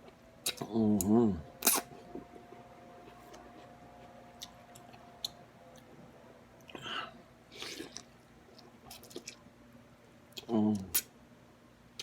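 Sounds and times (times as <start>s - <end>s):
slurping: 1.6s - 1.9s.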